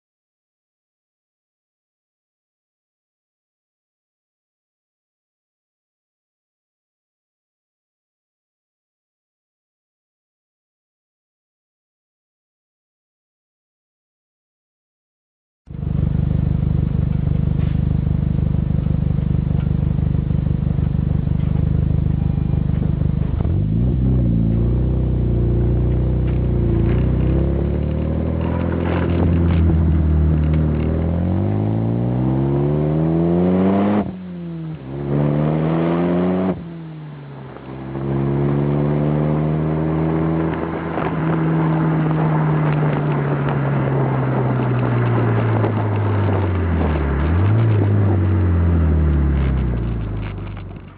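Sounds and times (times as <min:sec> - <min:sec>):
car engine idling and revving: 0:15.7 - 0:50.9.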